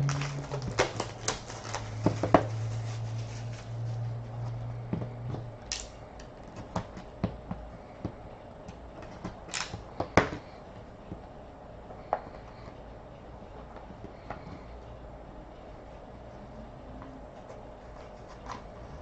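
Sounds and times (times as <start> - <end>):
packaging rustling: 0.0 - 4.1
low steady hum: 0.0 - 19.0.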